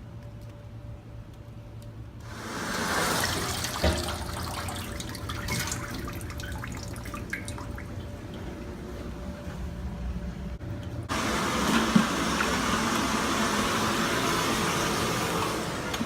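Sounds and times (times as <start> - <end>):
running water splashing: 2.3 - 8.5
water drips and spatters: 3.0 - 8.5.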